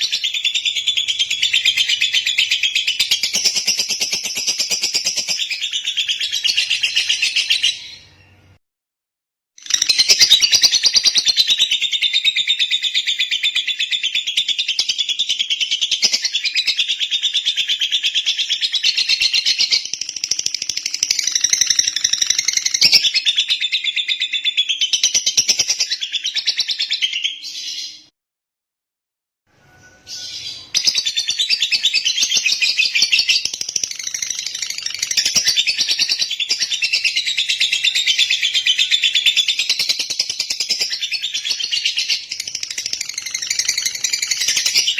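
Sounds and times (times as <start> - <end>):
lovebird chattering song: 9.6 - 28.0, 30.1 - 44.9.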